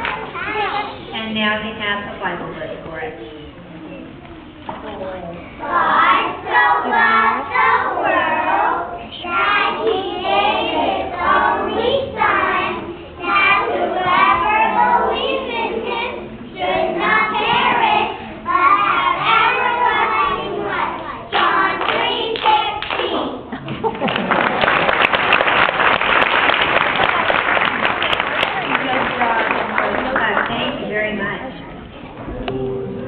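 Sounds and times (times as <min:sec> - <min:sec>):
children speaking in unison: 0:00.0 - 0:01.2.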